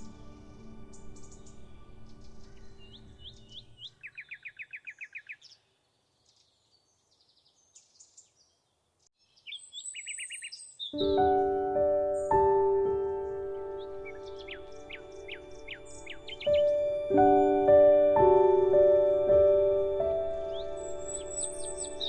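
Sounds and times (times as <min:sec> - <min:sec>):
soft music tones: 0:00.0 - 0:04.0, 0:11.0 - 0:22.0
songbirds singing: 0:00.0 - 0:22.0.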